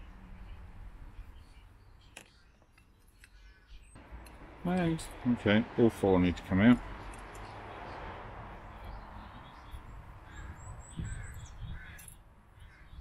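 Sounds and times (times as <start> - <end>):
birds calling: 0.0 - 13.0
high bird twitter: 8.7 - 13.0.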